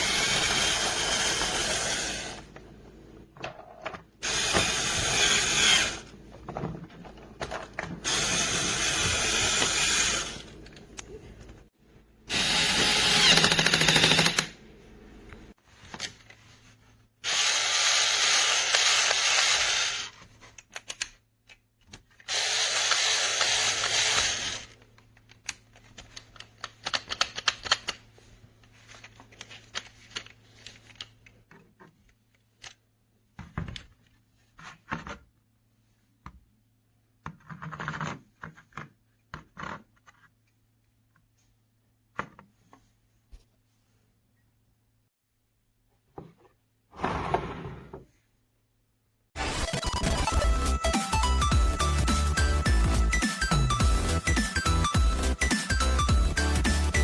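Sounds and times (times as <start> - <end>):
toy drill whirring: 0.0 - 2.5, 4.2 - 6.1, 8.0 - 10.6, 12.3 - 14.5, 17.2 - 20.2, 22.2 - 24.8
plastic parts clicking and knocking: 6.3 - 8.0, 24.2 - 28.1, 37.2 - 40.4.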